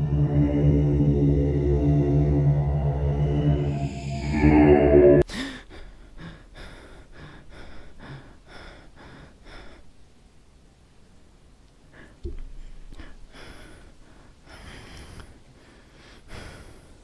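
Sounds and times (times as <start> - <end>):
low eerie music drone: 0.0 - 5.3
man gasping: 5.2 - 9.8
man panting: 5.2 - 9.9, 11.9 - 17.0.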